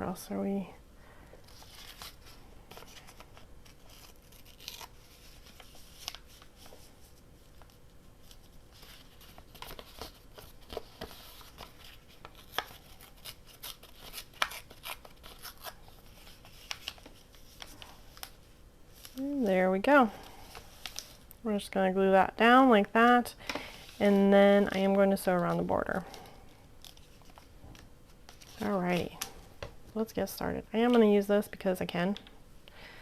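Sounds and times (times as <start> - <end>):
paper handling noise: 1.4 - 19.4, 20.1 - 21.4, 23.4 - 29.6
paper tearing: 3.0 - 6.2, 12.4 - 17.0.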